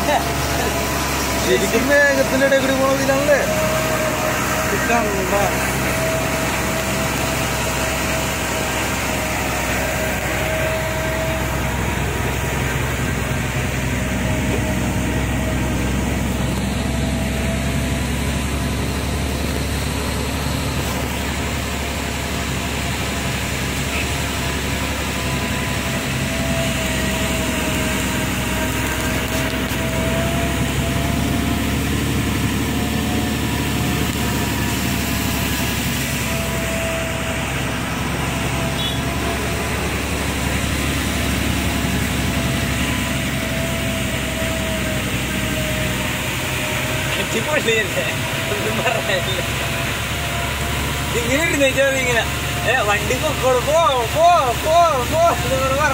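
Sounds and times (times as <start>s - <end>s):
road noise: 0.0s - 55.9s
truck engine hum: 0.0s - 55.9s.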